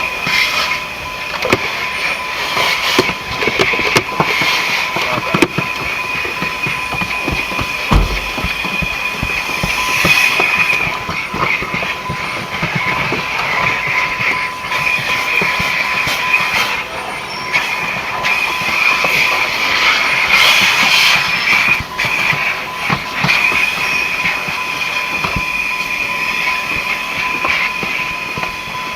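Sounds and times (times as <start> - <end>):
vacuum cleaner whine: 0.0 - 28.9
nozzle knocking against surfaces: 7.0 - 10.6.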